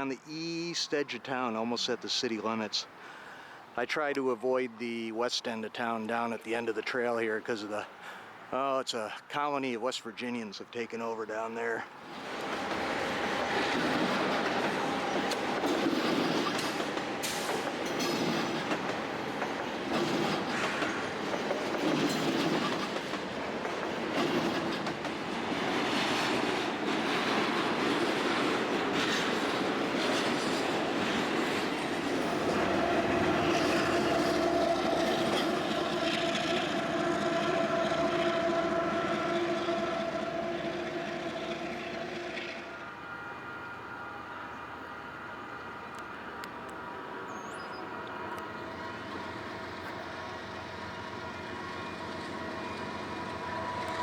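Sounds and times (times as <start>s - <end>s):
train wheels clacking: 13.5s - 42.6s.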